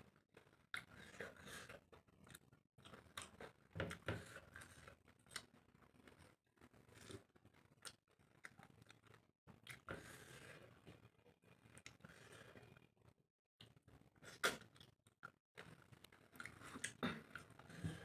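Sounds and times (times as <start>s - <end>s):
person chewing: 13.6s - 17.6s.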